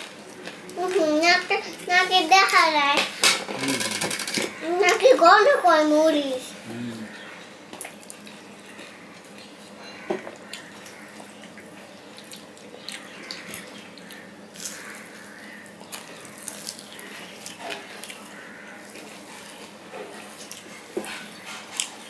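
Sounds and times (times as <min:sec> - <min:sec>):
wet chewing: 0:07.8 - 0:22.0.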